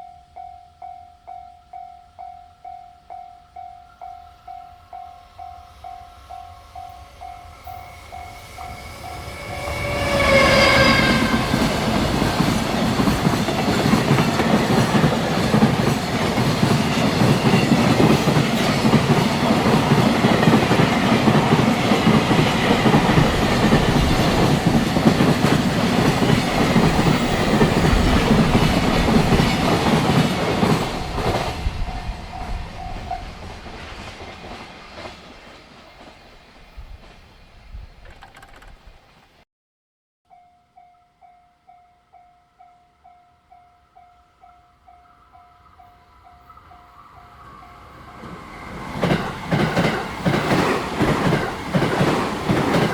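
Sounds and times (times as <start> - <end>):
train horn: 5.3 - 13.8
train wheels clattering on rails: 7.0 - 37.3, 37.9 - 39.2, 48.2 - 52.9.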